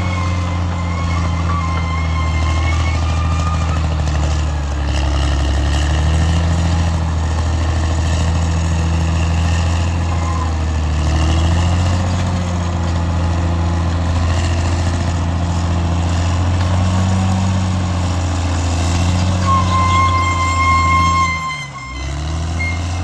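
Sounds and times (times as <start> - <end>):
bulldozer diesel engine running: 0.0 - 23.0
high-pitched whine: 19.4 - 23.0.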